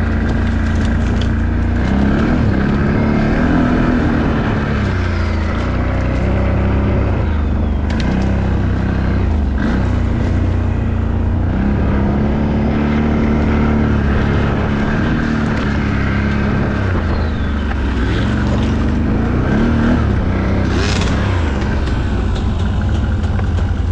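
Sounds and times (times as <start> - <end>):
atv engine revving: 0.0 - 23.9.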